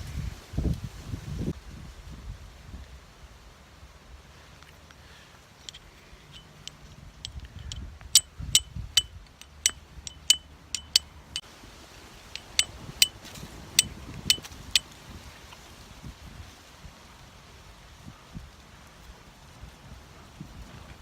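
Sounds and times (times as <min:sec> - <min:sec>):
fire steel striking flint: 0:05.7 - 0:11.1, 0:12.3 - 0:14.8.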